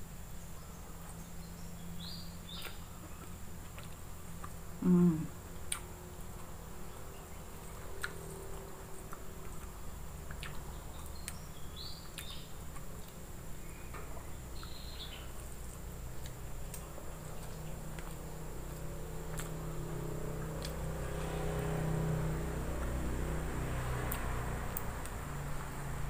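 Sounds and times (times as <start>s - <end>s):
person chewing quietly: 2.5s - 26.0s
person humming: 4.8s - 5.4s.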